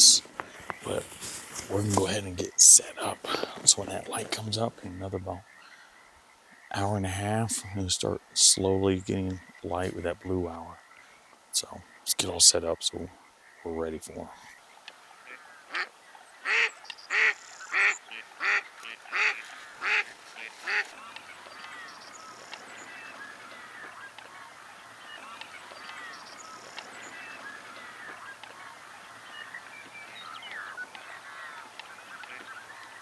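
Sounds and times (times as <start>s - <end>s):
waterfowl loud calls: 0.0s - 33.0s
flock calling on water: 15.1s - 33.0s.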